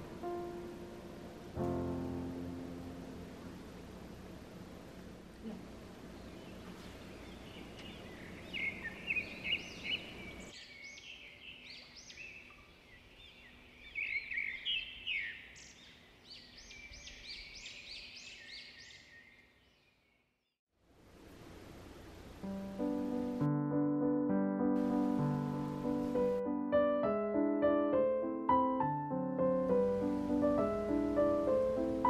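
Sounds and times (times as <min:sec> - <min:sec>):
low steady hum: 0:00.0 - 0:10.6, 0:20.8 - 0:23.5
small birds chirping: 0:05.4 - 0:20.5.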